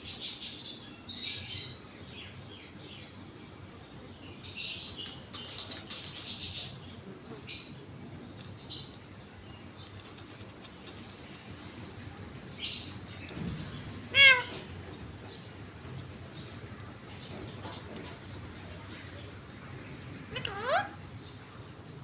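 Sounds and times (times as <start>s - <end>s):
parrot chirping and chattering: 4.2s - 18.6s, 19.9s - 21.7s.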